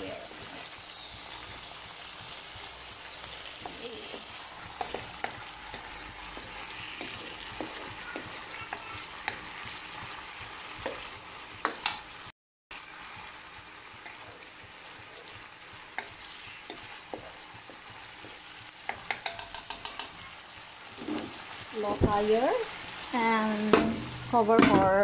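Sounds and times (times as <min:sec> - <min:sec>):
food sizzling in a wok: 0:00.0 - 0:25.0
spatula scraping and tapping pan: 0:01.1 - 0:12.2, 0:15.1 - 0:20.3, 0:20.9 - 0:21.6.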